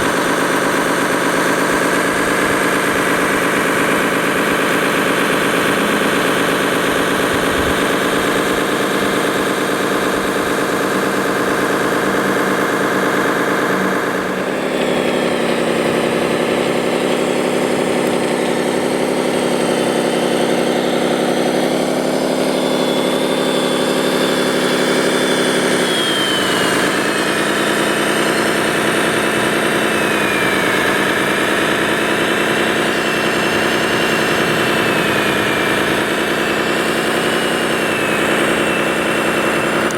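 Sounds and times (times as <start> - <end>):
toy vehicle engine running: 0.0 - 39.9
faint high whine: 22.6 - 39.9.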